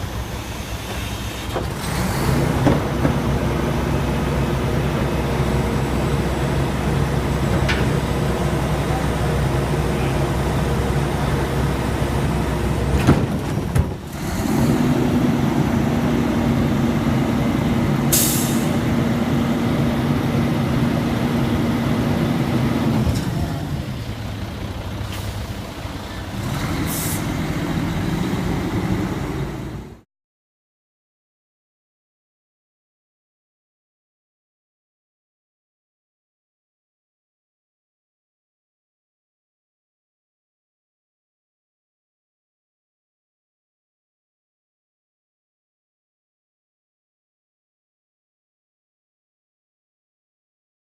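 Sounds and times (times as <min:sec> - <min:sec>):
garbage truck engine running: 0:00.0 - 0:30.0
air brake hisses: 0:18.1 - 0:18.8, 0:26.9 - 0:27.3.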